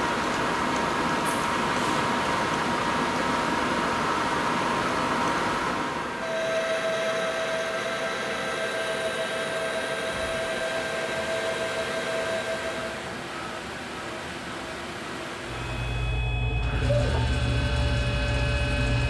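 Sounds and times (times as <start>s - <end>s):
metal lathe whine: 3.8s - 19.0s.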